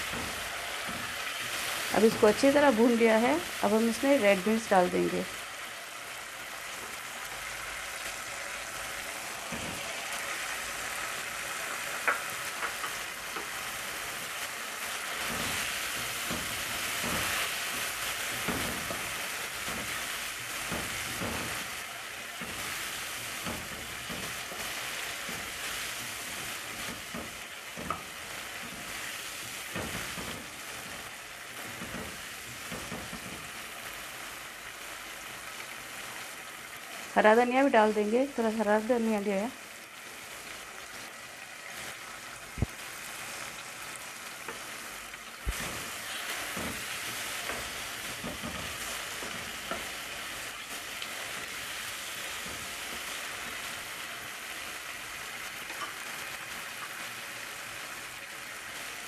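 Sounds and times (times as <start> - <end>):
masala sizzling in a pan: 0.0 - 59.0.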